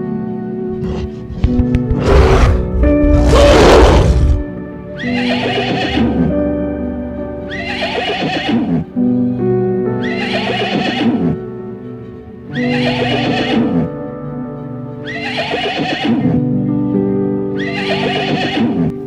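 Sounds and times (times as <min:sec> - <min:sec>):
background music: 0:00.0 - 0:19.0
horse neighing: 0:00.8 - 0:04.4, 0:05.0 - 0:06.4, 0:07.5 - 0:08.9, 0:10.0 - 0:11.4, 0:12.6 - 0:13.9, 0:15.0 - 0:16.4, 0:17.6 - 0:19.0.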